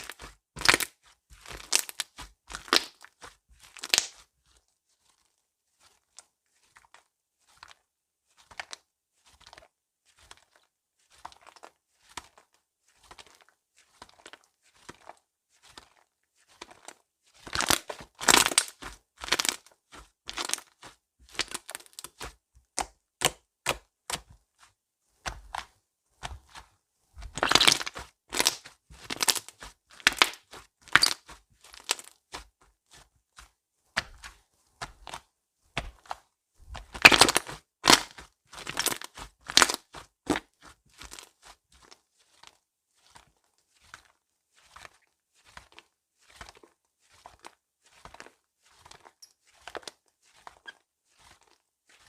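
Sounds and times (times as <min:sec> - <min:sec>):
slime crackling and popping: 0:00.0 - 0:00.9, 0:01.5 - 0:03.0, 0:03.7 - 0:04.2, 0:17.5 - 0:19.6, 0:27.2 - 0:32.1, 0:36.8 - 0:40.4.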